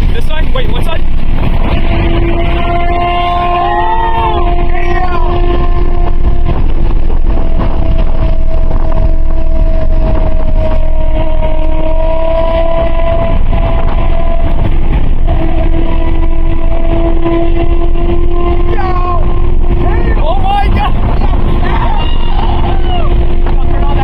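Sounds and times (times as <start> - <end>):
road and wind noise: 0.0 - 24.0
car engine drone: 5.4 - 24.0.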